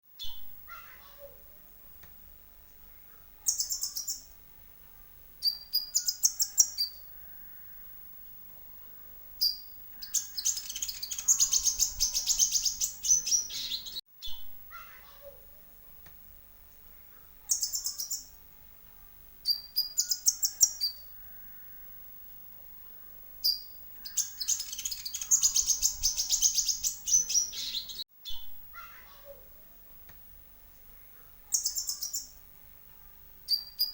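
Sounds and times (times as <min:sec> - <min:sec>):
high bird chirps: 0:03.4 - 0:04.4, 0:05.4 - 0:07.6, 0:09.4 - 0:14.5, 0:17.4 - 0:18.4, 0:19.4 - 0:21.8, 0:23.4 - 0:28.6, 0:31.5 - 0:32.4, 0:33.5 - 0:33.9
rapid bird trill: 0:03.4 - 0:04.4, 0:05.4 - 0:07.8, 0:09.4 - 0:14.4, 0:17.4 - 0:18.4, 0:19.4 - 0:21.8, 0:23.4 - 0:28.4, 0:31.5 - 0:32.4, 0:33.5 - 0:33.9.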